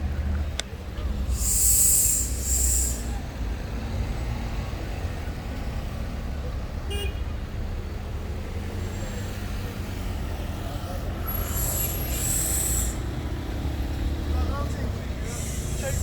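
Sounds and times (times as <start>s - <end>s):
street traffic rumbling: 0.0s - 16.0s
loud hiss bursts: 1.2s - 3.2s, 15.2s - 16.0s.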